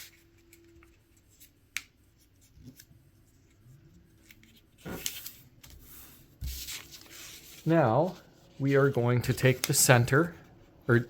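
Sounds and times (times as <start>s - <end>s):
paper rustling: 0.0s - 10.5s
paper crease rubbing: 4.2s - 9.9s.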